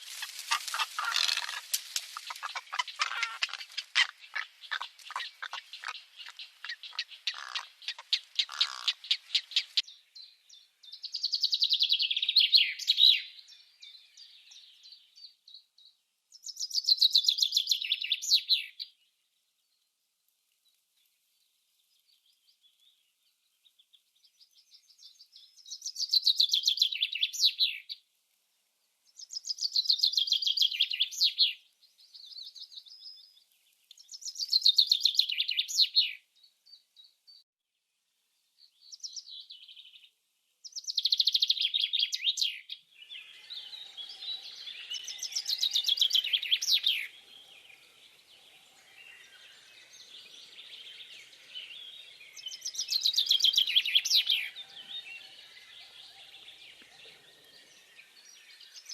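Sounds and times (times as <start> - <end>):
songbird trilling: 0.1 - 9.9, 34.0 - 36.2, 40.8 - 47.7, 48.9 - 57.0.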